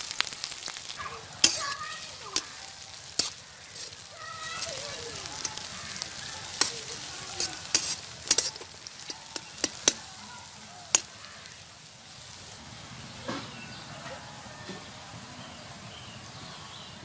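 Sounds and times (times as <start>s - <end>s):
onions sizzling in hot oil: 0.0s - 17.0s
metal spatula scraping pan: 1.4s - 10.3s, 10.9s - 11.2s.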